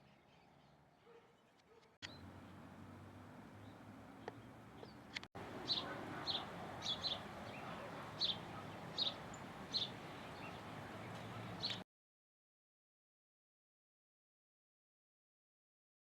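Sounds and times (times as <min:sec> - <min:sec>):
outdoor background noise: 0:00.0 - 0:11.8
bird chirping: 0:03.6 - 0:11.8.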